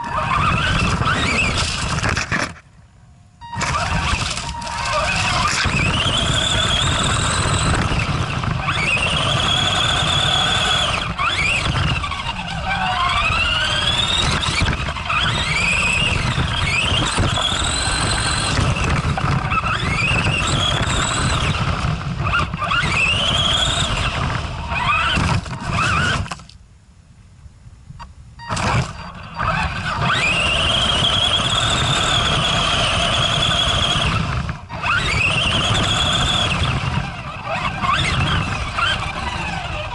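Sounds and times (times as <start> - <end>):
electric motor whining: 0.0 - 2.6, 3.5 - 26.4, 28.4 - 39.9.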